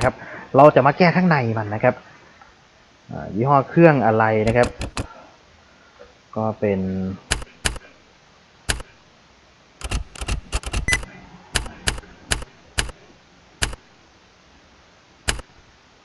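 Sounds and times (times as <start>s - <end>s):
typing on computer keyboard: 4.4s - 5.1s, 7.3s - 7.9s, 8.7s - 8.9s, 9.8s - 13.0s, 13.6s - 13.8s, 15.3s - 15.6s.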